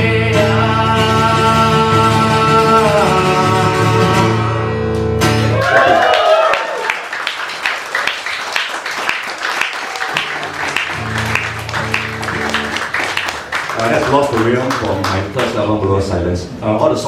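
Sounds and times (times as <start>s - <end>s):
audience applause: 5.5s - 15.6s
acoustic guitar chord: 10.1s - 12.8s.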